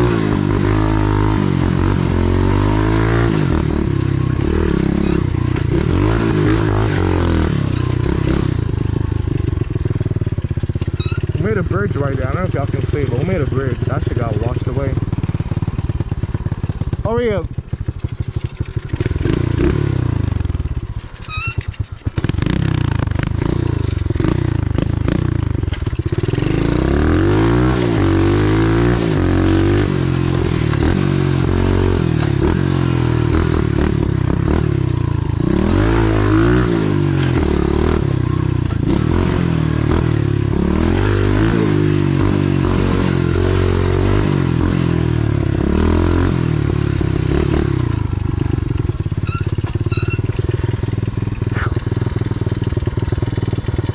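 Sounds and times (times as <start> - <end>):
motorbike engine revving: 0.0 - 53.9.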